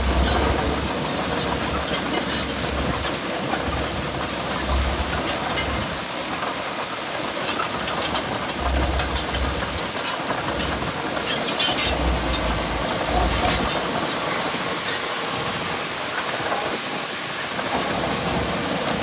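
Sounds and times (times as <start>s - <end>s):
diesel engine running: 0.0s - 6.6s, 7.2s - 16.4s
metallic rattling and clanking: 7.6s - 14.2s.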